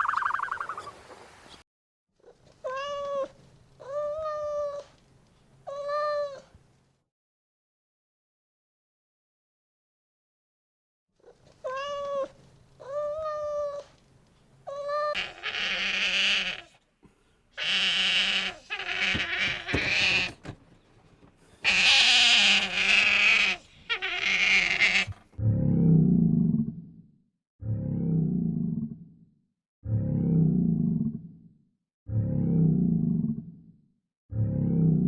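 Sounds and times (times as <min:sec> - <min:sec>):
animal harsh hissing calls: 0:15.2 - 0:16.8, 0:17.6 - 0:20.3, 0:21.6 - 0:25.2
animal short pitched calls: 0:15.2 - 0:16.8, 0:17.6 - 0:20.4, 0:21.6 - 0:25.2
animal low growl: 0:22.5 - 0:27.0, 0:27.8 - 0:29.1, 0:30.0 - 0:31.5, 0:32.1 - 0:33.7, 0:34.3 - 0:35.0.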